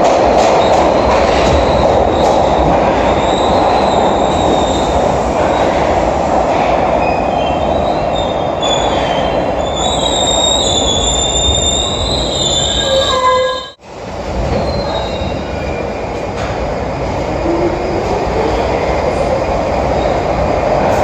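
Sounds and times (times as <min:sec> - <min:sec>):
train wheels rumbling on rail: 0:00.0 - 0:21.0
high-pitched wheel squeal: 0:08.6 - 0:13.8.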